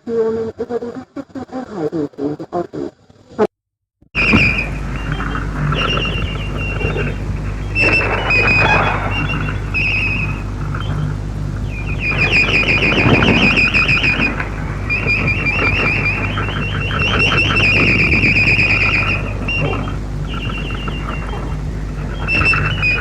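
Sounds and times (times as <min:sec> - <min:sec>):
electronic warbling chirps: 0:04.2 - 0:23.0
low hum and reception noise: 0:04.2 - 0:23.0.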